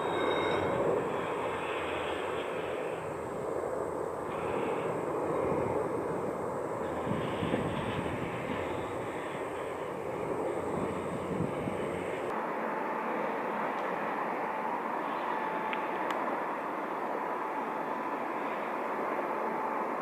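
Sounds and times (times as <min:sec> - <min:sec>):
jet engines rushing: 0:00.0 - 0:13.4.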